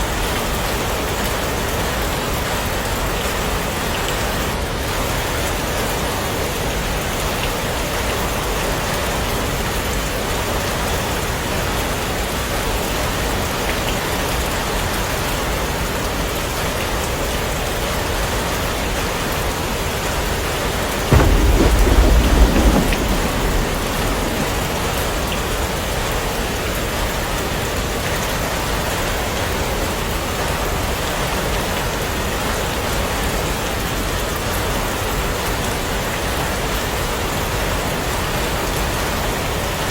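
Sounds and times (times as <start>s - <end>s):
heavy rain falling: 0.0s - 39.9s
thunder clap rumbling: 20.9s - 27.6s.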